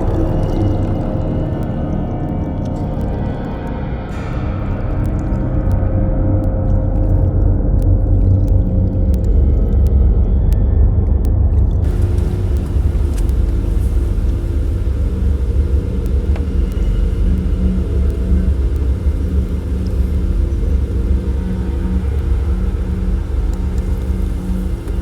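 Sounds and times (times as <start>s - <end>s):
car tyres and engine rumble: 10.9s - 25.0s
faint even hum: 11.8s - 25.0s.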